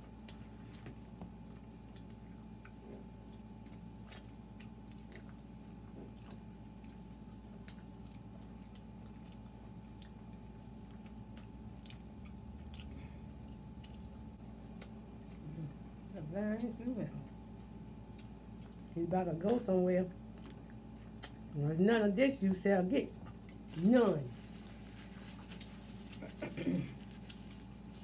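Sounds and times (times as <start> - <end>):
people chewing and biting: 0.0 - 16.0, 17.3 - 19.6, 20.2 - 21.6
low electrical hum: 0.0 - 28.0.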